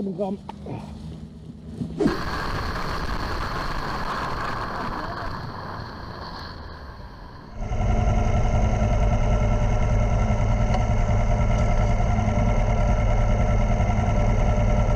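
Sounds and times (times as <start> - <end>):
motorcycle engine running: 7.6 - 14.9.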